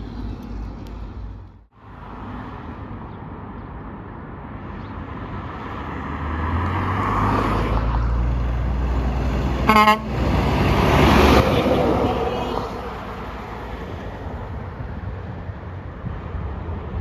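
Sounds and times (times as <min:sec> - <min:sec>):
road traffic noise: 0:00.0 - 0:17.0
truck engine approaching: 0:06.2 - 0:16.2.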